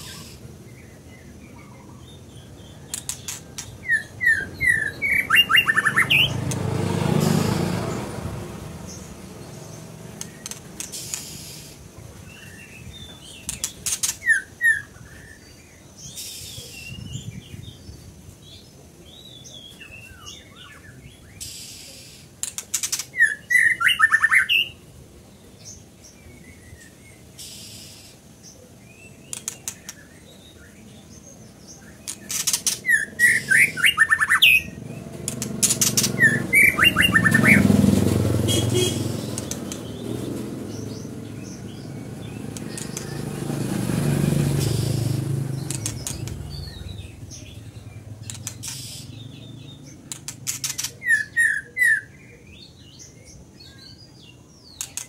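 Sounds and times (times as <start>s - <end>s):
songbird singing chirpy phrases: 0.0s - 55.0s
vehicle passing: 2.0s - 12.4s, 31.6s - 52.0s.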